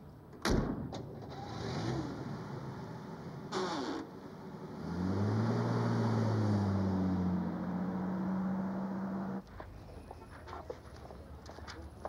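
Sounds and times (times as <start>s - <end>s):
car engine accelerating: 1.3s - 9.4s.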